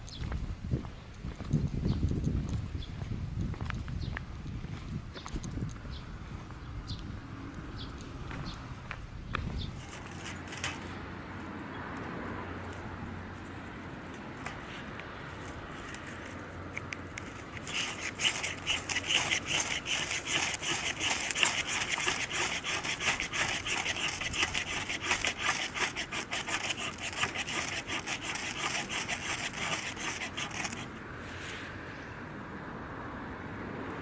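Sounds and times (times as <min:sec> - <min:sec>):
saw cutting through wood: 0:09.8 - 0:10.8, 0:17.6 - 0:31.0.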